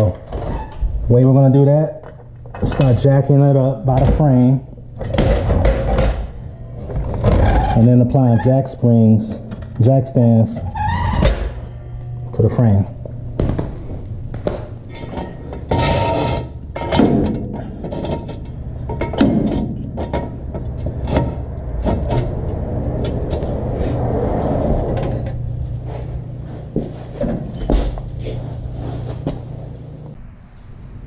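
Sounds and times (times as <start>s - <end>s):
steady low hum: 0.0s - 31.0s
metal clanks and knocks: 2.0s - 8.0s, 14.4s - 23.7s, 26.7s - 28.2s.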